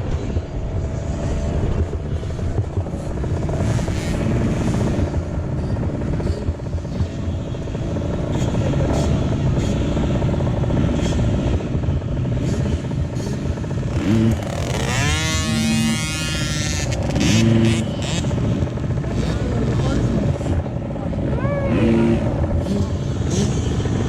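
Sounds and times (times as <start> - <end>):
dirt bike engines running: 0.0 - 24.0
dirt bike revving hard: 0.0 - 24.0.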